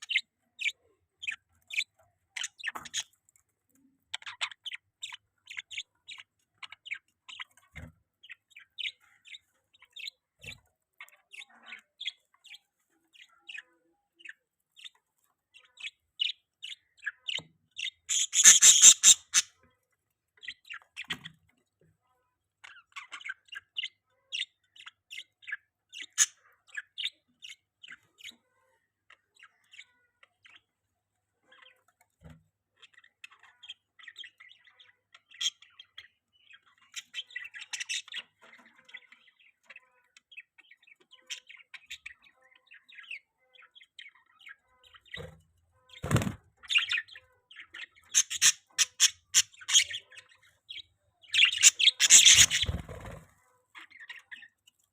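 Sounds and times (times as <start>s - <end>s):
budgerigars chirping: 0.0s - 3.2s, 15.6s - 19.7s, 32.8s - 54.5s.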